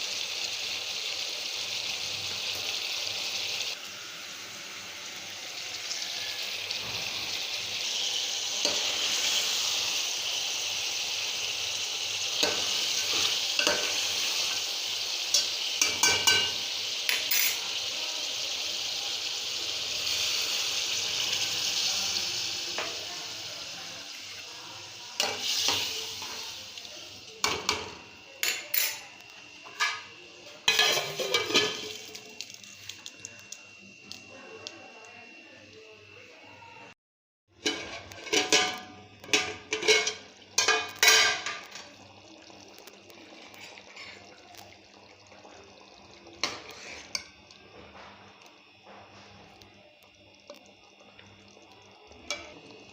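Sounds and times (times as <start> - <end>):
curry sizzling in a pan: 0.0 - 34.3, 37.5 - 52.9
spoon scraping and clinking pot: 30.7 - 32.0, 37.6 - 41.8.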